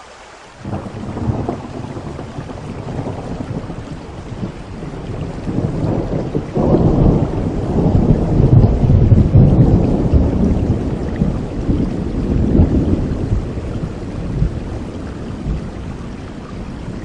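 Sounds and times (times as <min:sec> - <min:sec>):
steady rain: 0:00.0 - 0:17.0
thunder rumbling: 0:00.6 - 0:17.0.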